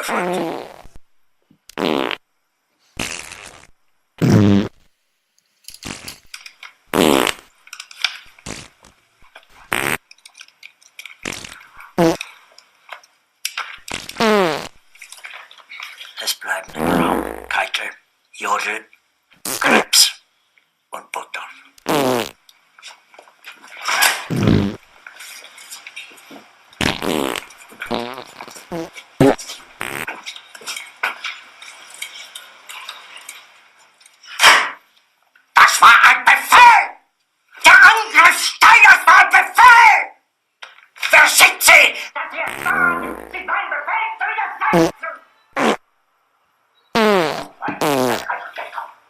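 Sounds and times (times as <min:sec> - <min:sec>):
fart sound effects: 0:00.0 - 0:01.0, 0:01.7 - 0:02.2, 0:03.0 - 0:04.9, 0:06.9 - 0:07.5, 0:08.4 - 0:08.9, 0:09.6 - 0:10.0, 0:11.2 - 0:12.2, 0:13.8 - 0:14.8, 0:16.7 - 0:17.6, 0:19.4 - 0:20.0, 0:21.8 - 0:22.4, 0:24.3 - 0:24.9, 0:26.8 - 0:30.2, 0:42.5 - 0:43.4, 0:44.7 - 0:45.0, 0:45.6 - 0:45.9, 0:47.0 - 0:48.3
faint clicks and rustles: 0:05.3 - 0:14.2, 0:14.9 - 0:16.4, 0:22.4 - 0:24.3, 0:24.9 - 0:26.8, 0:27.4 - 0:35.6.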